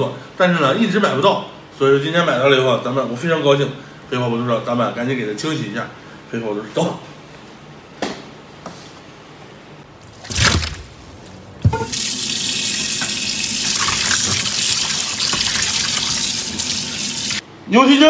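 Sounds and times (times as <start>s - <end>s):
tap water running into sink: 11.6s - 17.4s.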